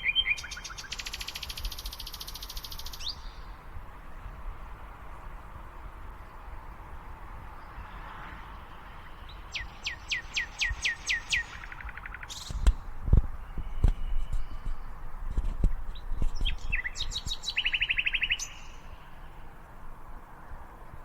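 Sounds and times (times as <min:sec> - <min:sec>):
songbird whistling and trilling: 0:00.0 - 0:03.6, 0:09.3 - 0:12.7, 0:16.3 - 0:19.1
dull low thumps: 0:12.5 - 0:16.9.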